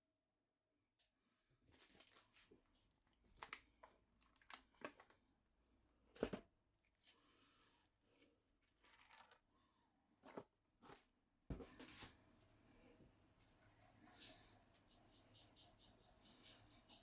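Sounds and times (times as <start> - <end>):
rustling and crinkling handling noise: 1.7 - 5.2.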